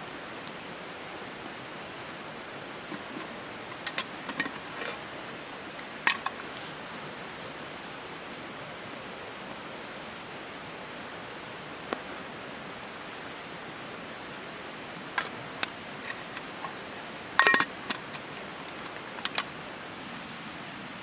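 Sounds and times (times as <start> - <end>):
steady background hiss: 0.0 - 21.0
sharp clicks and light knocks: 2.9 - 5.0, 15.1 - 16.8, 17.4 - 19.6.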